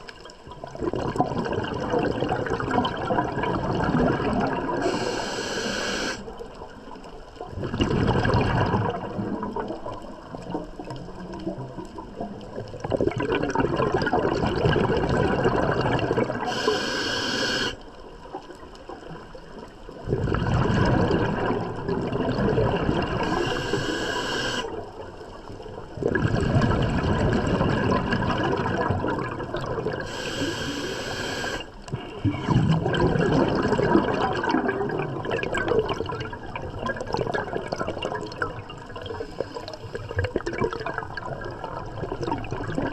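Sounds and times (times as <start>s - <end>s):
scuba exhaled bubbles gurgling: 0.0s - 42.9s
regulator sharp hiss: 4.8s - 6.2s, 16.5s - 17.8s, 23.3s - 24.7s, 30.1s - 31.7s.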